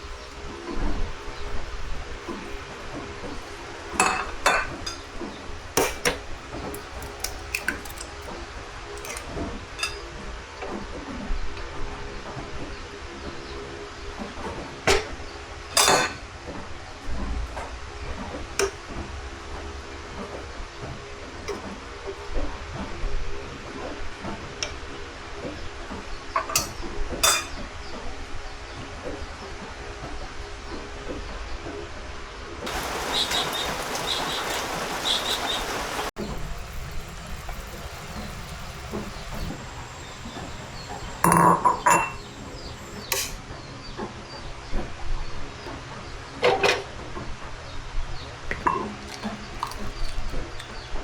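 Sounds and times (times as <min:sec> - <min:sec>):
dishes and utensils clinking: 0:02.2 - 0:08.3, 0:09.0 - 0:10.1, 0:15.8 - 0:16.2, 0:26.4 - 0:27.6, 0:36.9 - 0:43.4.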